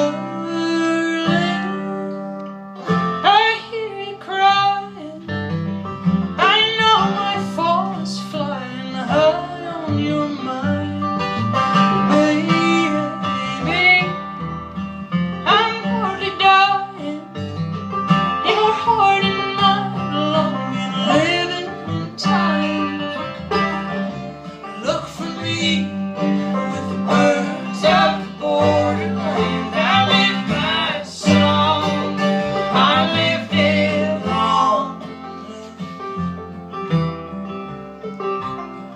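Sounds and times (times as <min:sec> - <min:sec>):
person singing: 0:00.0 - 0:02.4, 0:06.4 - 0:11.2, 0:12.0 - 0:14.2, 0:15.5 - 0:17.4, 0:18.5 - 0:35.8
string band playing: 0:00.0 - 0:38.9.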